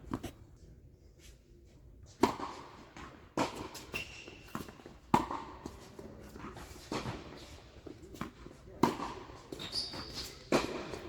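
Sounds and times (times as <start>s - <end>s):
tennis ball bouncing: 4.6s - 5.5s.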